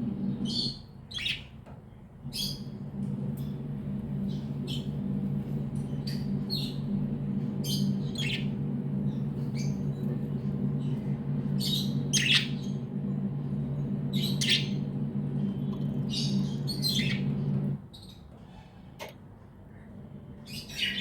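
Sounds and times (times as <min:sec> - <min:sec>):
steady low hum: 0:00.0 - 0:00.8, 0:02.2 - 0:17.9
budgerigars chirping: 0:11.6 - 0:12.8.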